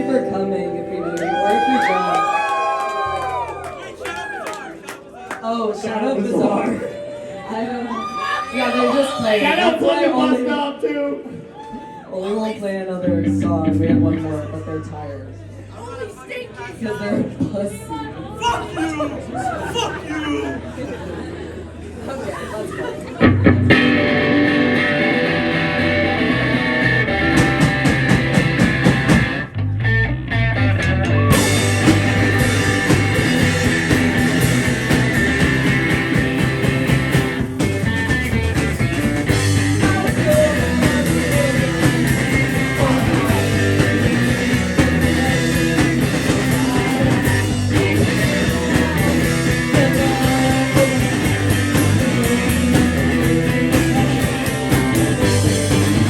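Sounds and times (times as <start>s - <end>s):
live rock band playing: 0.0s - 5.2s, 23.2s - 56.0s.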